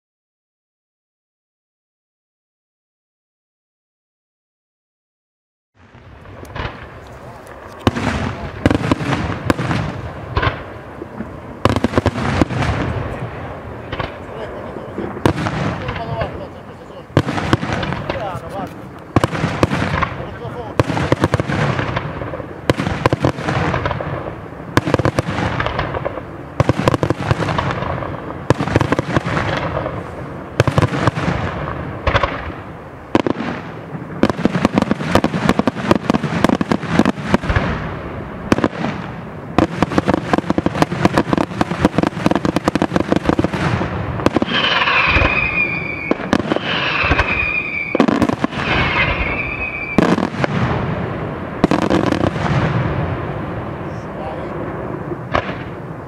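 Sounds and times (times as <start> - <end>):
fireworks bangs: 5.8 - 56.0
falling firework whistles: 39.6 - 50.9.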